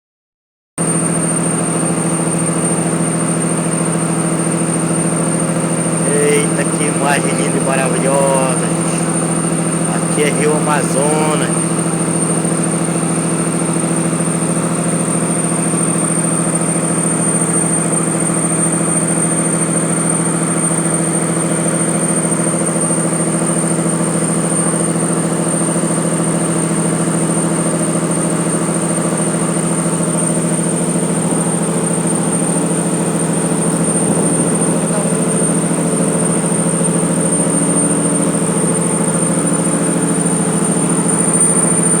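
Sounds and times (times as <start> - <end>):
high-pitched whine: 0.8 - 14.3, 30.0 - 42.0
boat engine running: 0.8 - 42.0.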